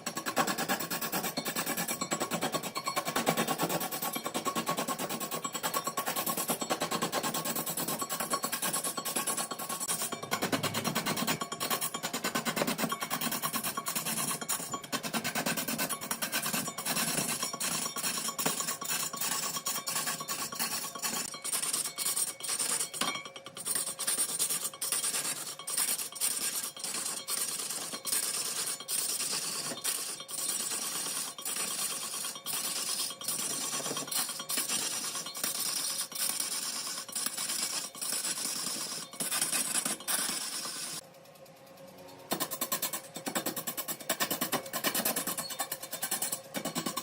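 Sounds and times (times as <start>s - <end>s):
lathe tool scraping wood: 10.8s - 41.0s.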